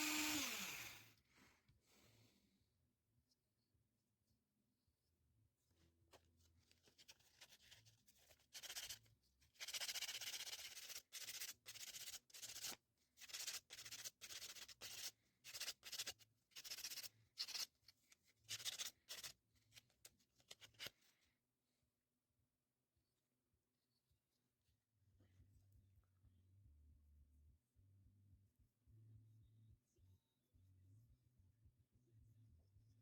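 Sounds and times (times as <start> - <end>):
sandpaper rubbing on wood: 9.6 - 17.7.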